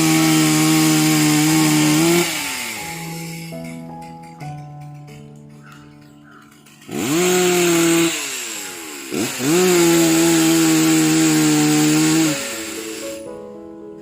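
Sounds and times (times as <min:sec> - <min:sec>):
chainsaw engine revving: 0:00.0 - 0:03.6, 0:06.8 - 0:13.3.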